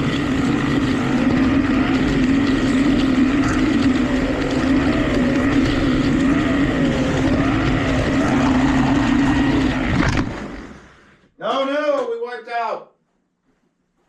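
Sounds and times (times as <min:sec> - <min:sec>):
slot car electric motor running: 0:00.0 - 0:10.9.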